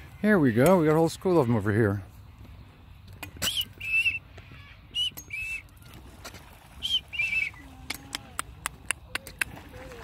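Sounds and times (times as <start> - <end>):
birds whistling two-note calls: 3.4 - 5.8, 6.8 - 7.7.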